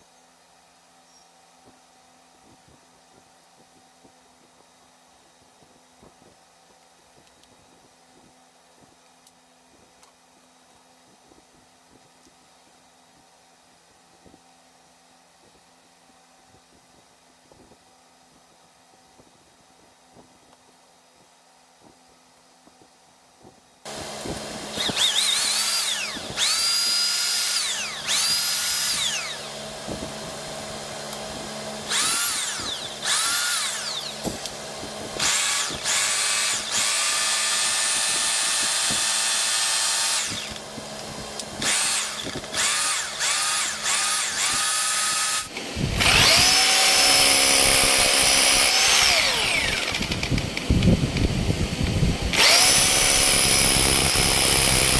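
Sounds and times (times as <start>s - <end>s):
rotary hammer drill motor whining: 23.9s - 54.9s.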